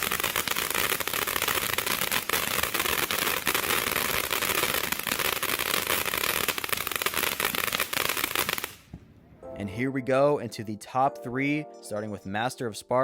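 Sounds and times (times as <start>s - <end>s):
firework hiss: 0.0s - 9.0s
firework rapid crackling: 0.0s - 9.0s.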